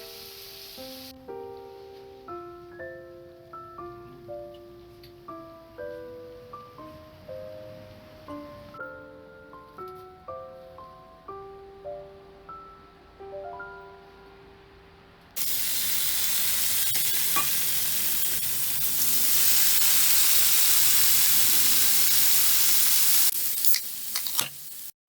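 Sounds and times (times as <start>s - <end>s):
food sizzling in a hot pan: 0.0s - 1.2s, 15.4s - 25.0s.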